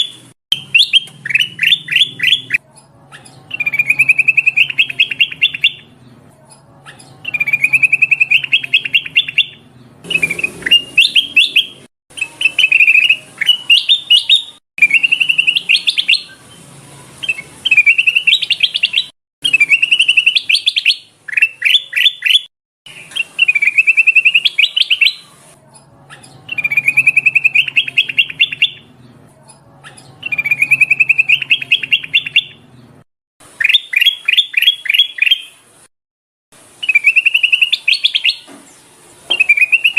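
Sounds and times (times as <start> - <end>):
bulbul chirping: 0.0 - 6.0, 6.8 - 16.4, 17.3 - 25.4, 26.1 - 28.9, 29.8 - 32.8.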